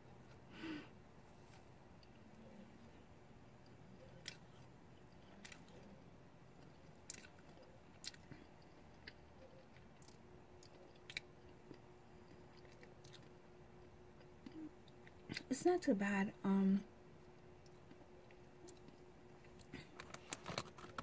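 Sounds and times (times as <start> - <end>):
person chewing: 3.6 - 15.5, 17.2 - 21.0.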